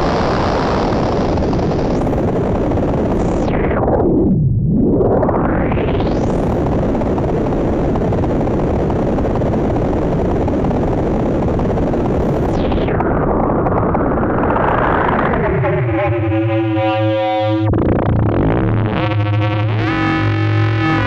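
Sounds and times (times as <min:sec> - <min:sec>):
synth noise wash: 0:00.0 - 0:21.0
pitched synth tone: 0:14.9 - 0:21.0.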